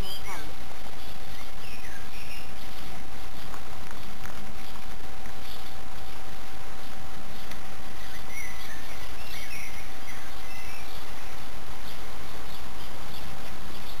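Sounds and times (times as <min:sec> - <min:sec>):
background hiss: 0:00.0 - 0:14.0
small birds chirping: 0:00.0 - 0:14.0.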